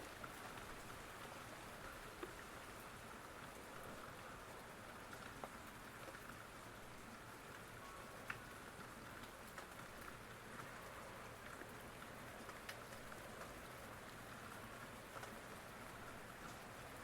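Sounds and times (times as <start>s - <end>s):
faint rain hiss: 0.0s - 17.0s
raindrops ticking: 7.5s - 17.0s.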